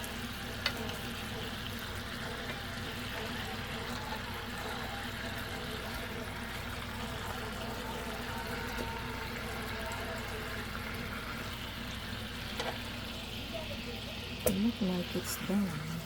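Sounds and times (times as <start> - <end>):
chicken simmering in a pan: 0.0 - 16.0.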